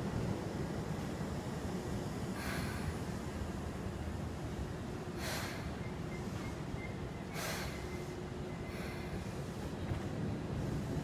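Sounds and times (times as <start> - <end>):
electric train low hum: 0.0 - 11.0
short air hisses: 5.2 - 6.5, 7.2 - 9.7.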